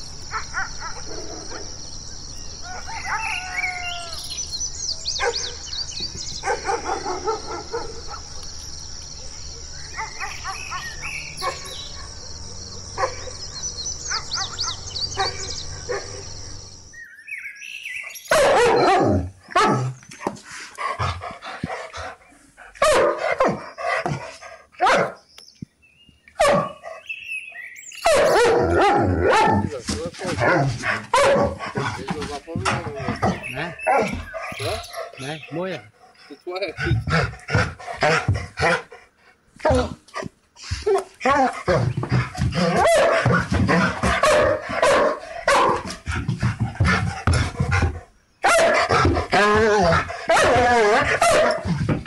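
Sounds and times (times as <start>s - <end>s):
dog barking: 5.2s - 5.6s, 6.4s - 8.5s, 9.9s - 12.2s, 13.0s - 13.4s, 14.1s - 16.2s, 18.1s - 20.0s, 22.8s - 25.2s, 26.4s - 27.0s, 28.0s - 32.1s, 32.7s - 35.7s, 36.8s - 38.9s, 42.5s - 46.2s, 47.6s - 52.0s
dog snarling: 28.2s - 52.0s.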